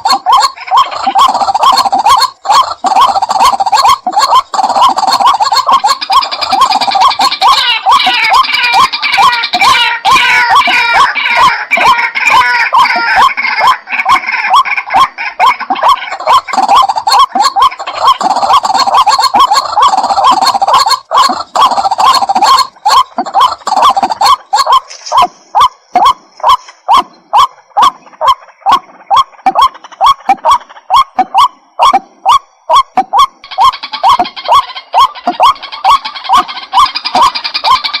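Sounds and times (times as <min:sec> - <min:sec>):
bird harsh repeated calls: 0:00.0 - 0:38.0.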